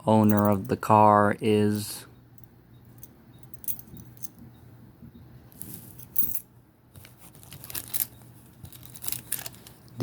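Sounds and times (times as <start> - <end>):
car keys clinking: 0.2 - 0.7.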